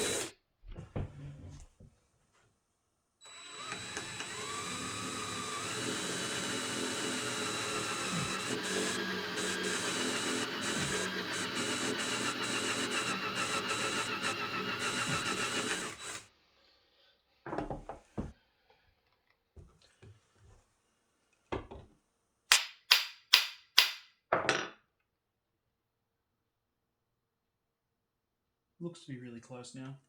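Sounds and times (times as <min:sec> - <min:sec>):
drill running: 0:00.0 - 0:00.3, 0:03.2 - 0:16.3.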